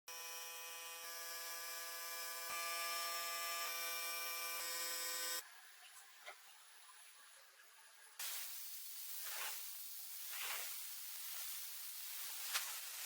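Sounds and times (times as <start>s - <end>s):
small electric tool buzzing: 0.1s - 5.4s
spraying hiss: 8.2s - 13.0s.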